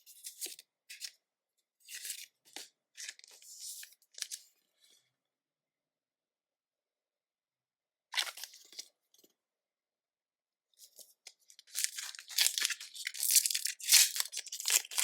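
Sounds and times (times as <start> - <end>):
foil wrapper tearing: 11.8 - 15.0.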